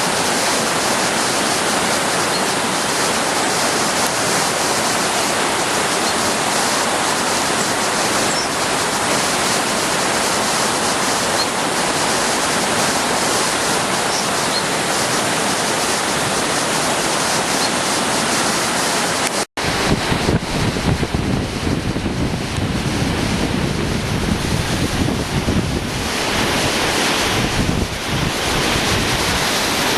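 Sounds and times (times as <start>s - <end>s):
floodwater rushing: 0.0s - 29.9s
wind buffeting microphone: 19.6s - 29.9s.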